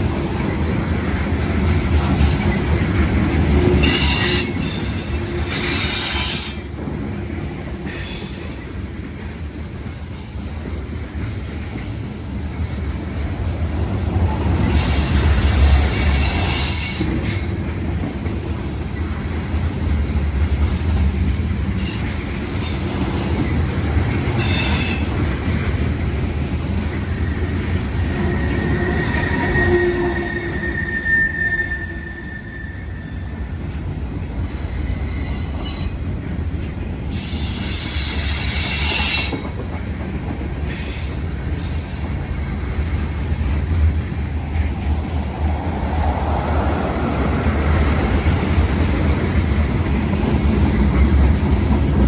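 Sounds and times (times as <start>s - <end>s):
train wheels rumbling on rail: 0.0s - 52.0s
high-pitched wheel squeals: 3.8s - 6.7s, 14.6s - 17.7s, 27.2s - 33.7s, 34.4s - 36.1s, 37.2s - 39.6s.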